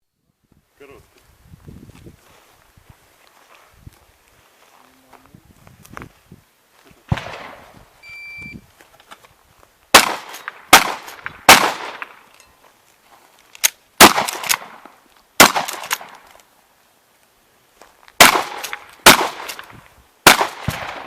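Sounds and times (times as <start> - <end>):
loud shotgun shots with echo: 7.1 - 7.7, 9.9 - 12.1, 14.0 - 14.8, 15.4 - 16.1, 18.2 - 21.0
shot timer beep: 8.0 - 8.6.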